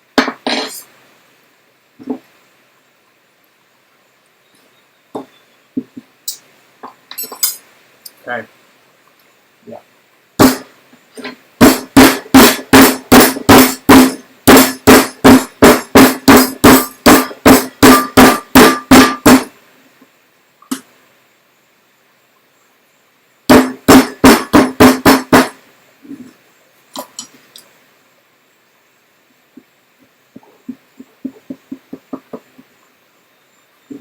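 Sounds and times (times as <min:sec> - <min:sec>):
hard strikes pounding food: 0:10.4 - 0:10.7, 0:11.6 - 0:19.5, 0:23.5 - 0:25.6.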